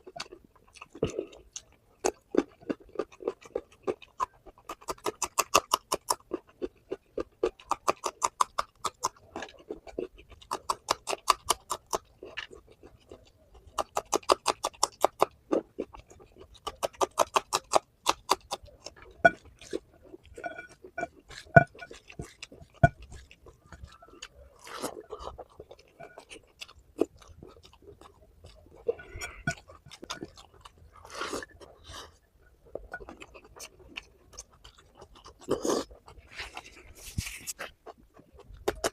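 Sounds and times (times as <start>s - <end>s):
open-mouth chewing: 0.0s - 38.9s
wet mouth clicks: 38.6s - 38.9s.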